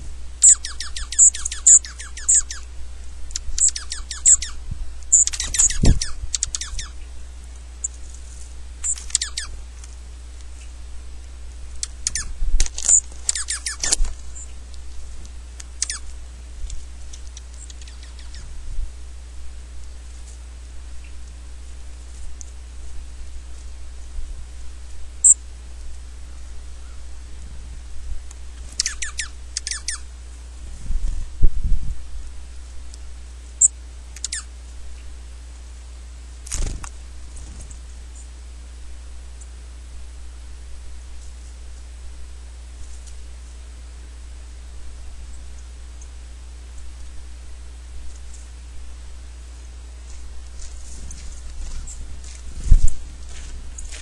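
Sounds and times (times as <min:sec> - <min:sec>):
small birds chirping: 0:00.0 - 0:10.9, 0:11.6 - 0:18.7, 0:25.1 - 0:27.3, 0:28.3 - 0:31.3, 0:32.7 - 0:35.2, 0:49.2 - 0:54.0
rustle: 0:00.0 - 0:54.0
steady low rumble: 0:00.0 - 0:54.0
falling bird call notes: 0:00.4 - 0:02.7, 0:11.8 - 0:14.6.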